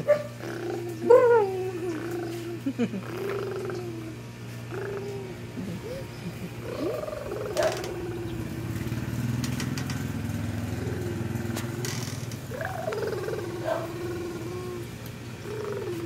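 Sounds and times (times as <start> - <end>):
wavering vocal sounds: 0.4 - 9.3, 10.5 - 16.0
motorcycle engine idling: 6.5 - 16.0.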